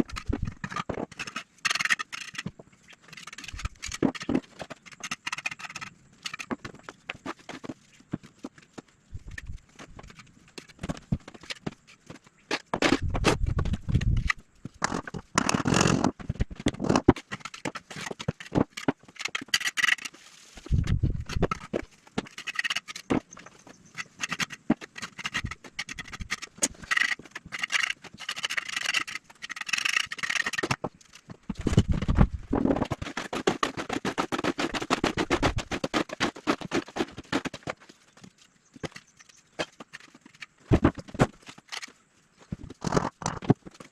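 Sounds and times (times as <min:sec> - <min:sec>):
scraping and knocking: 0:00.0 - 0:41.9.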